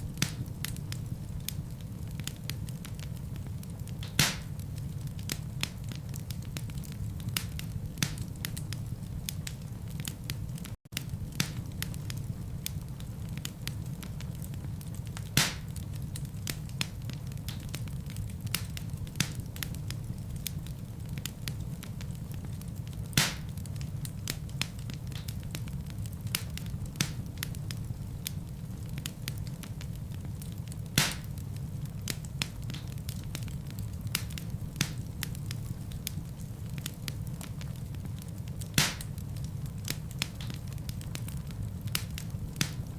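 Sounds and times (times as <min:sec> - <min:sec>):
fire crackling: 0:00.0 - 0:42.9
fire flames rumbling: 0:00.0 - 0:42.9
logs popping sharply: 0:04.2 - 0:04.5, 0:23.2 - 0:23.4.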